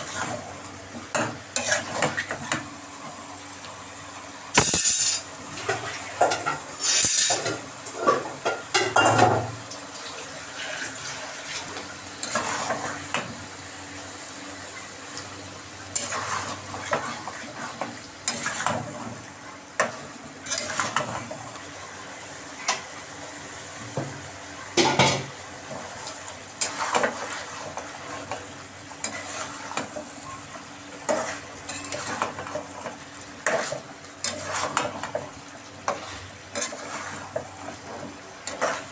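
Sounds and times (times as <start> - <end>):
curry sizzling in a pan: 0.0 - 38.9
spoon scraping a pan: 4.6 - 5.3, 6.3 - 8.2, 29.0 - 29.9, 31.1 - 32.6, 33.4 - 35.2, 35.9 - 37.4.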